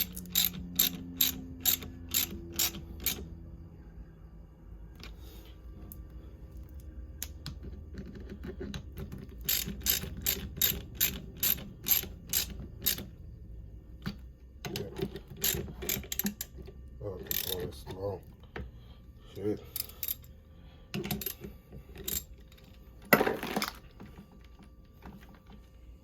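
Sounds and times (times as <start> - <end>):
hand ratchet clicking: 0.0 - 3.2, 8.6 - 13.1, 14.7 - 16.5, 17.2 - 17.7, 19.7 - 20.3, 21.0 - 22.3.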